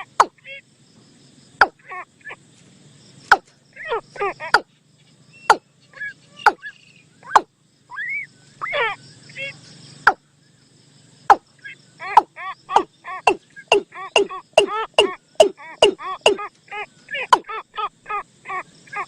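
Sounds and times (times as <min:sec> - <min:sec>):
bird chirps and notes: 0:03.2 - 0:10.4, 0:11.2 - 0:17.7.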